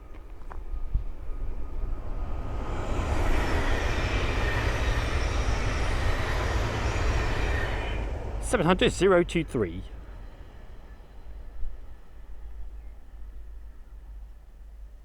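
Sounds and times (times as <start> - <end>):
train wheels rushing on rail: 0.7 - 8.5.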